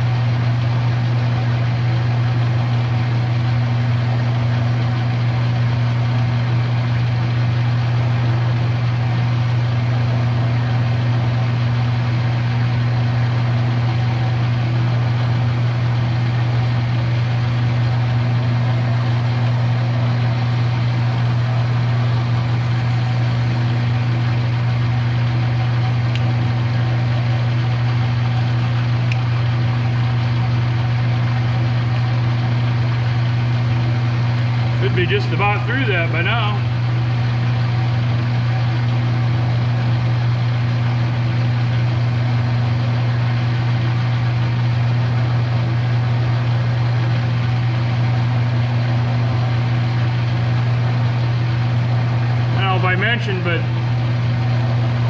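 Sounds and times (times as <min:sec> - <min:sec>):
electric drill boring through metal: 0:15.9 - 0:25.1.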